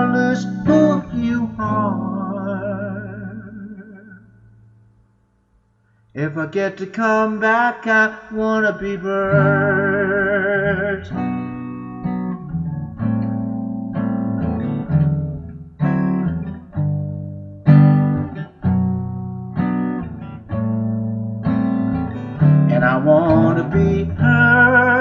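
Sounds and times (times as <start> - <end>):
man singing with vibrato: 0.0 - 4.4, 6.2 - 11.4, 22.2 - 25.0
guitar chords strummed: 0.0 - 5.0, 8.6 - 25.0.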